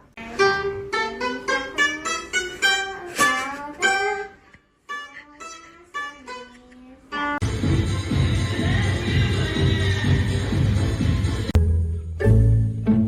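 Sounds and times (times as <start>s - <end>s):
plucked string instrument melody: 0.2s - 7.5s, 11.5s - 13.0s.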